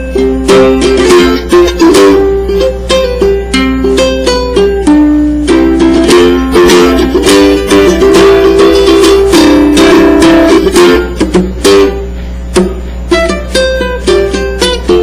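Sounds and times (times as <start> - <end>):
ukulele playing a melody: 0.0 - 15.0.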